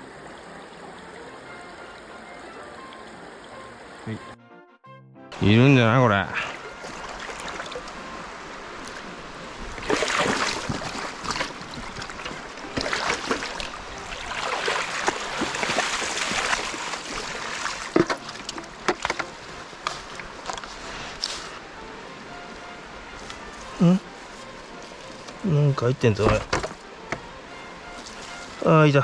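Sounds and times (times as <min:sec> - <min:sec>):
stream rushing: 0:00.0 - 0:04.4, 0:05.3 - 0:29.0
net splashing through water: 0:06.6 - 0:07.9, 0:09.8 - 0:18.5
sharp knocks: 0:26.2 - 0:27.2.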